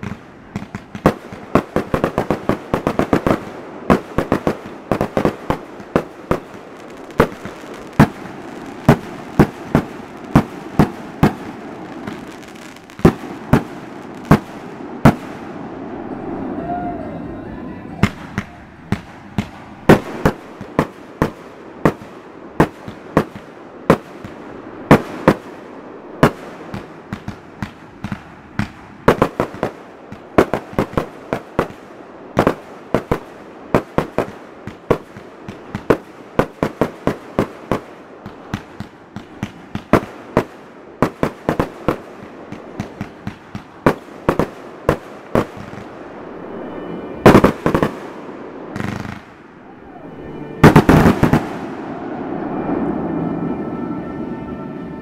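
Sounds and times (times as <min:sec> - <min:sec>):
fireworks bangs: 0:00.0 - 0:54.9.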